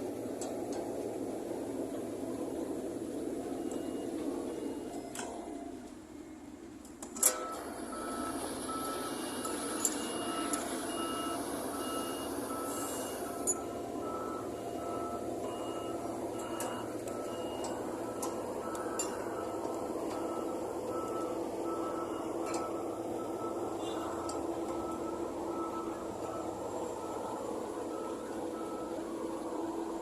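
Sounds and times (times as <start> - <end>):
reversing alarm beeping: 2.9 - 5.6, 7.2 - 30.0
engine running: 7.6 - 30.0.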